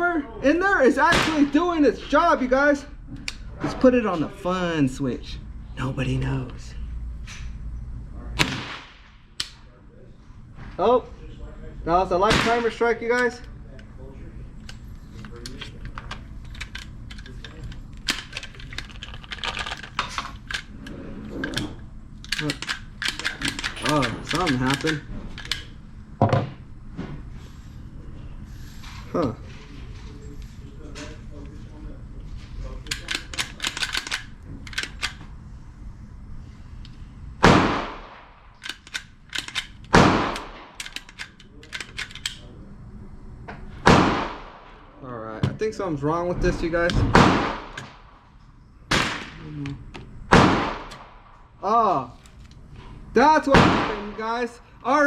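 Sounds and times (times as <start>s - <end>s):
rifle action metallic clicks: 21.4s - 25.7s, 32.8s - 35.2s, 38.1s - 42.4s.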